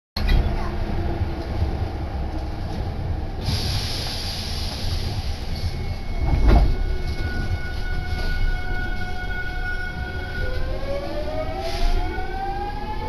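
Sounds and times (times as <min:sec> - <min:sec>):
train interior rumble: 0:00.2 - 0:13.0
hiss: 0:03.4 - 0:05.7.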